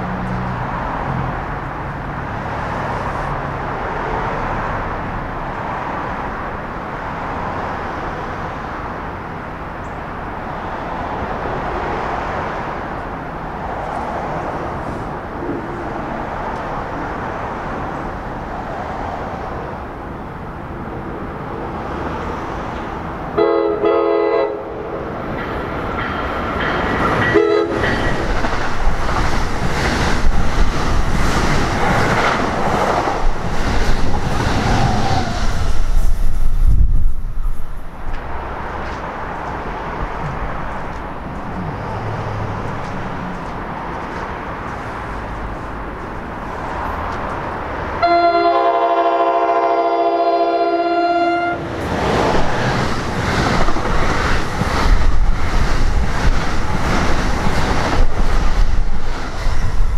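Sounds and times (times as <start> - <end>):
train rumbling on rails: 0.0 - 59.9
train horn blasts: 23.4 - 25.0, 27.3 - 27.9, 48.0 - 51.6.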